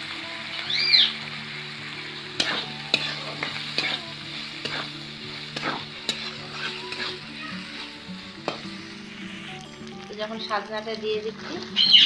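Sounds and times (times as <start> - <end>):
potatoes sizzling in hot oil: 0.0 - 12.0
metal spatula scraping pan: 2.4 - 8.6.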